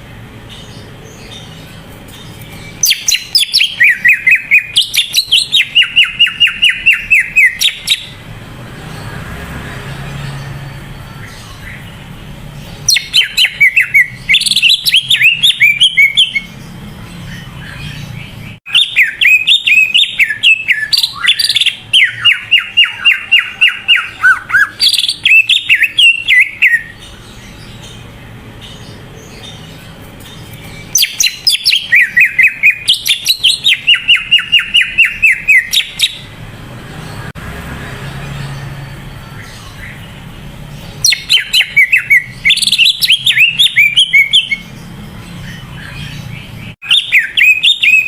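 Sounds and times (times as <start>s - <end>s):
bird rapid high chirping song: 0.0s - 48.0s.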